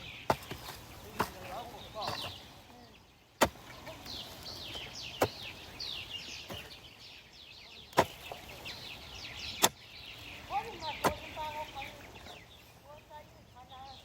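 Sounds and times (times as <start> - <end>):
hoe chopping into soil: 0.0 - 2.5, 3.4 - 6.8, 7.9 - 9.9, 11.0 - 11.3
small birds chirping: 0.0 - 14.0.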